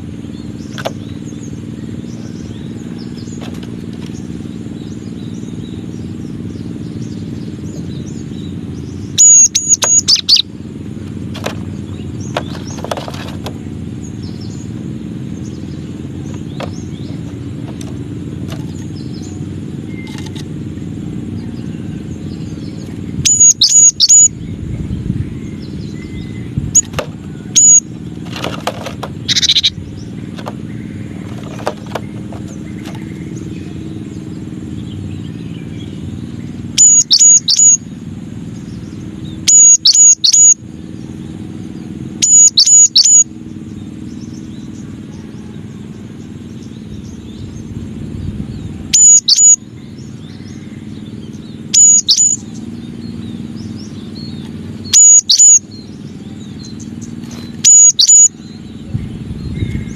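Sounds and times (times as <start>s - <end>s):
low background rumble: 0.0s - 59.9s
bird whistling song: 0.3s - 10.6s, 21.4s - 37.9s, 38.6s - 41.1s, 42.1s - 44.8s, 48.5s - 59.9s.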